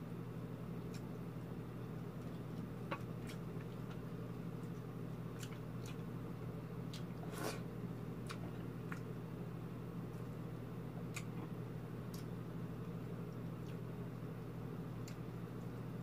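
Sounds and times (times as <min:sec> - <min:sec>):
wet chewing and lip smacks: 0:04.6 - 0:06.1, 0:08.2 - 0:09.1, 0:11.1 - 0:12.3.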